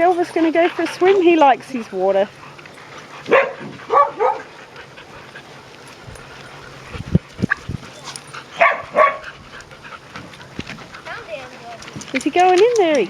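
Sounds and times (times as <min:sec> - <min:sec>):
dog yipping: 0:03.3 - 0:04.5, 0:07.5 - 0:09.3.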